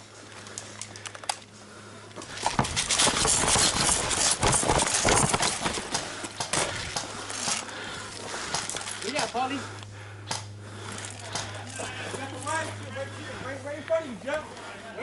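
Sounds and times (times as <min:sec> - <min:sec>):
gear jostling: 0:00.1 - 0:09.9, 0:10.7 - 0:13.0
running footfalls: 0:02.3 - 0:09.0.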